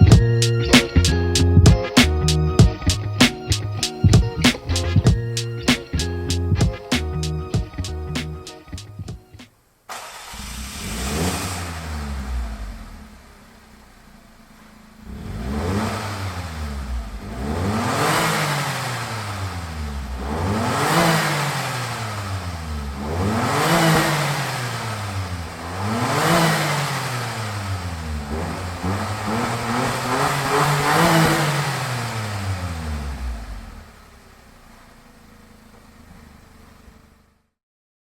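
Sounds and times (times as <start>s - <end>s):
truck engine revving: 10.1s - 13.1s, 15.0s - 33.8s.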